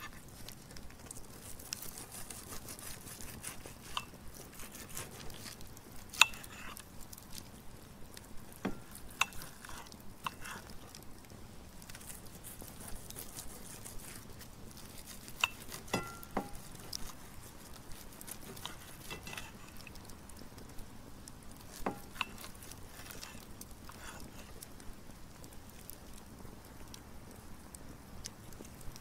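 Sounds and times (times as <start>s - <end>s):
faint steady hiss: 0.0s - 29.0s
knife and fork cutting steak: 1.4s - 6.9s, 8.5s - 10.8s, 11.9s - 20.0s, 21.7s - 24.6s
cutlery clinking on plate: 15.4s - 16.6s.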